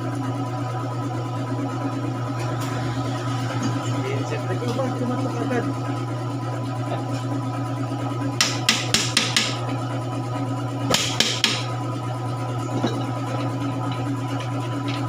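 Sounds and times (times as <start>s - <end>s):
hammer tapping on metal: 8.4s - 9.6s, 10.9s - 11.7s.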